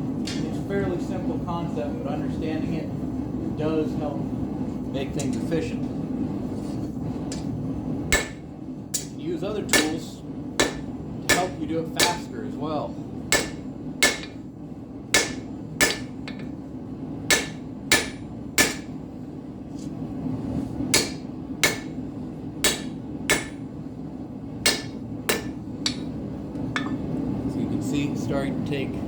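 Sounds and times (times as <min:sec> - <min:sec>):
gas forge running: 0:00.0 - 0:29.0
hammer striking steel on anvil: 0:08.1 - 0:12.3, 0:13.3 - 0:14.4, 0:15.1 - 0:16.6, 0:17.3 - 0:19.0, 0:20.9 - 0:22.0, 0:22.6 - 0:23.6, 0:24.6 - 0:26.2, 0:26.8 - 0:27.1.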